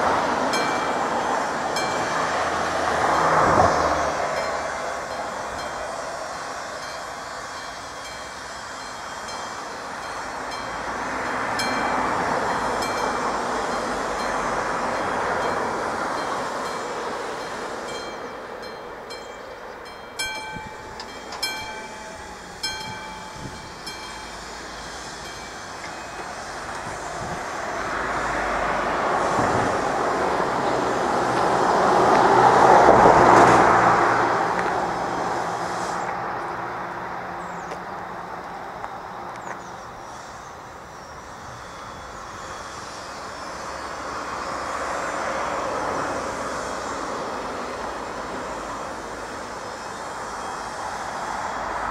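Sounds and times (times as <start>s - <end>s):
train passing: 0.0s - 51.9s
level crossing bell ringing: 15.0s - 26.2s.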